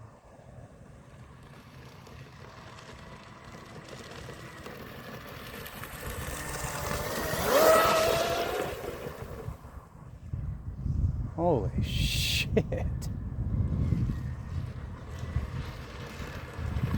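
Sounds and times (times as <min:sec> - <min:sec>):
electric motor whining: 0:06.0 - 0:09.7.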